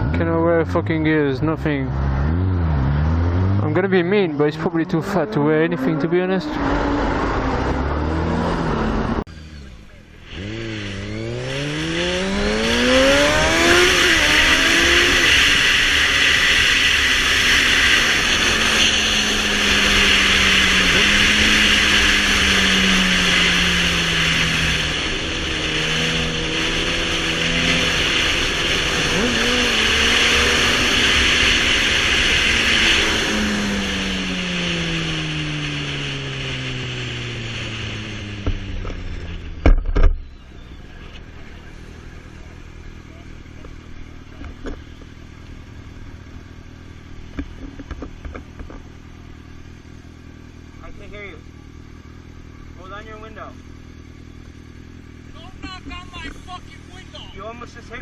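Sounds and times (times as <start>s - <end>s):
rushing noise of speed: 0.0s - 51.2s
vehicle engine accelerating: 0.0s - 58.0s.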